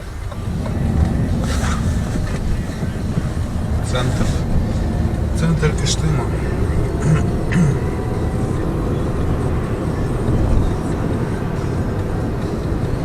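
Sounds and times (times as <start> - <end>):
road and engine rumble in car: 0.0 - 13.0.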